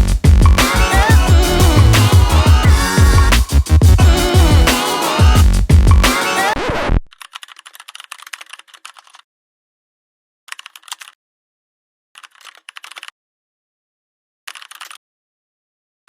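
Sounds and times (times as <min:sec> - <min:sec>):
typing on keyboard: 0:07.1 - 0:09.2, 0:10.5 - 0:11.2, 0:12.2 - 0:13.1, 0:14.5 - 0:15.0.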